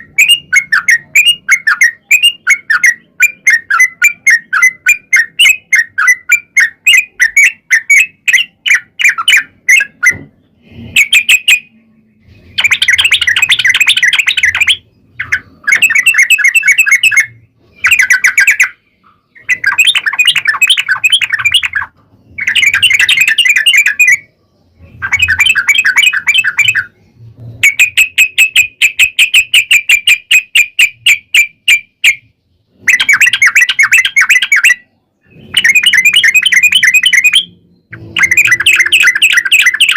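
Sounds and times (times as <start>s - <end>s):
bulbul song trills: 27.6s - 39.9s.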